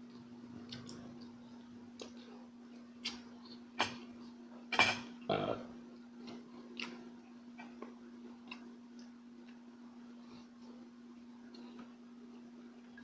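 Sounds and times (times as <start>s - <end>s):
chewing and wet mouth sounds: 0.0s - 3.8s, 6.2s - 9.7s
steady low hum: 0.0s - 13.0s.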